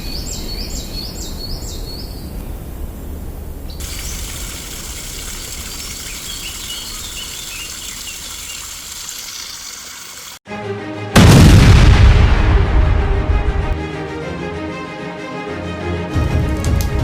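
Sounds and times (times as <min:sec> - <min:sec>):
small birds chirping: 0:03.7 - 0:09.6.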